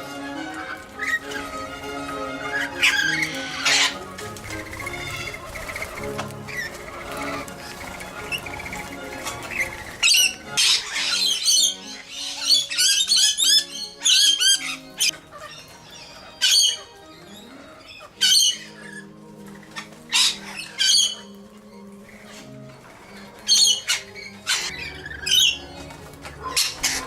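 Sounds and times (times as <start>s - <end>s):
background music: 0.0s - 27.0s
bird squawking harshly: 0.6s - 17.1s, 17.9s - 21.3s, 26.4s - 27.0s.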